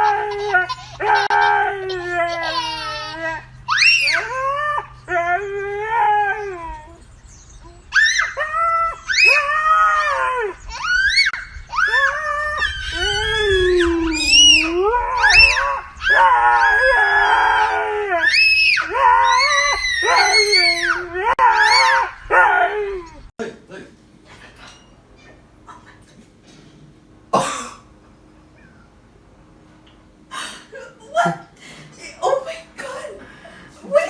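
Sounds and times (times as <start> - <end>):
dog howling: 0.0 - 23.3.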